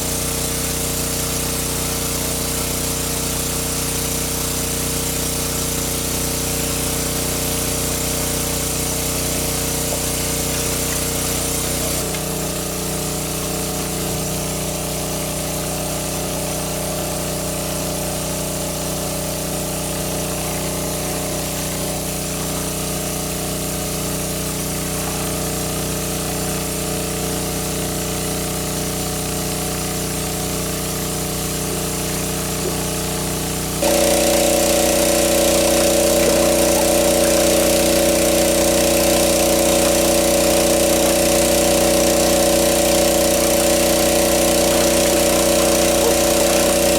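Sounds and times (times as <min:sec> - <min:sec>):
small motor running: 0:00.0 - 0:46.9.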